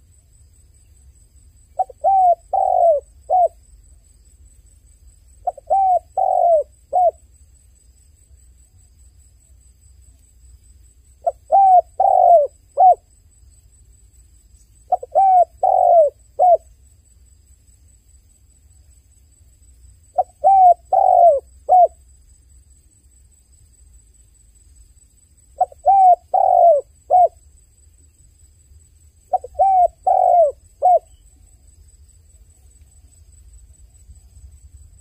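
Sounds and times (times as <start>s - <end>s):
dove cooing: 1.8s - 3.6s, 5.4s - 7.2s, 11.2s - 13.1s, 14.9s - 16.6s, 20.2s - 22.0s, 25.6s - 27.4s, 29.3s - 31.2s.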